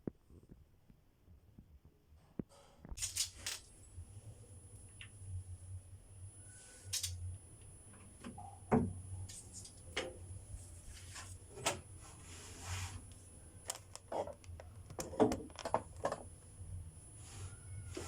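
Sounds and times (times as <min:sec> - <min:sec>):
small objects clicking and knocking: 0:02.9 - 0:03.7
low steady hum: 0:03.0 - 0:18.0
soft rustles: 0:10.6 - 0:13.3.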